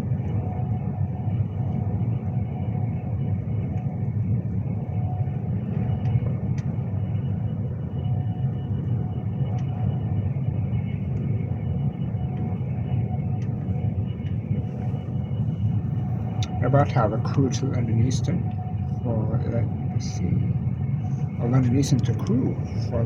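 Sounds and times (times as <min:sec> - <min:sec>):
faint steady whine: 0:00.0 - 0:23.0
train interior rumble: 0:00.0 - 0:23.0.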